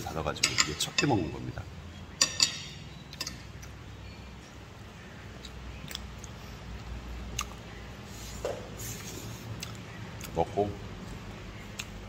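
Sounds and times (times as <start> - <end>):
person chewing food: 5.4 - 7.6, 9.4 - 10.4, 11.7 - 12.0.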